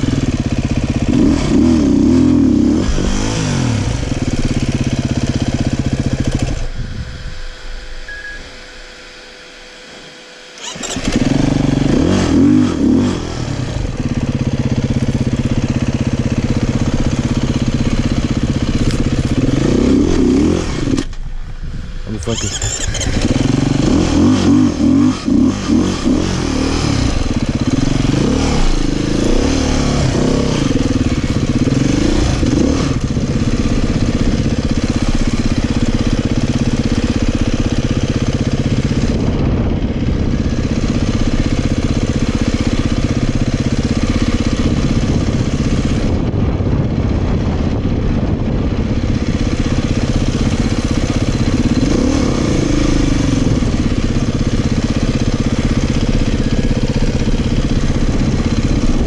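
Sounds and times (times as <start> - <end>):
dirt bike engine revving: 0.0 - 21.2, 22.1 - 59.0.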